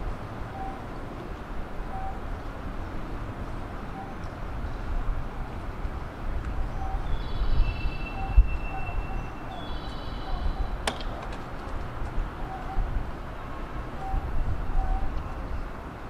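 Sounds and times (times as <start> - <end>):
electric train low rumble: 11.7 - 16.0.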